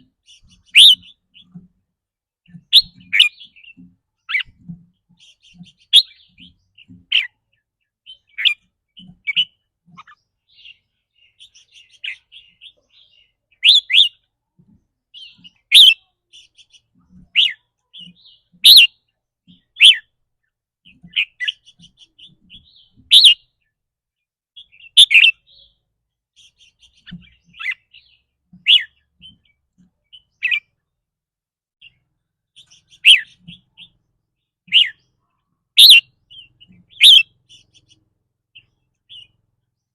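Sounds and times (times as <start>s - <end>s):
soft bird twittering: 0.0s - 1.6s, 2.4s - 14.3s, 15.1s - 20.1s, 20.8s - 23.8s, 24.6s - 30.8s, 31.8s - 39.9s
bird giving sharp high calls: 0.7s - 1.1s, 18.6s - 18.9s, 24.8s - 25.4s, 33.0s - 33.5s, 35.8s - 36.1s, 36.9s - 37.3s.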